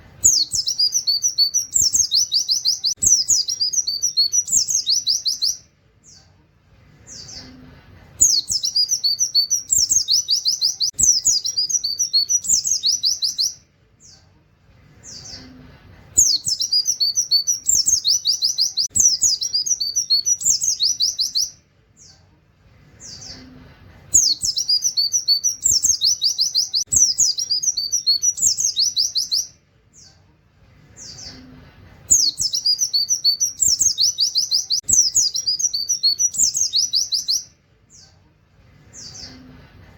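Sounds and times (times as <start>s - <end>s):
bird singing rapid trills: 0.2s - 5.6s, 8.2s - 13.6s, 16.2s - 21.6s, 24.2s - 29.6s, 32.1s - 38.1s.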